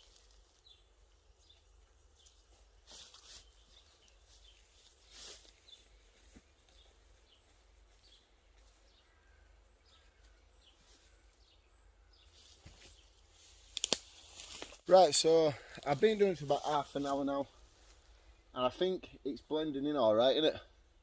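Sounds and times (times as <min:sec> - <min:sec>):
faint bird chirps: 0:00.0 - 0:13.5.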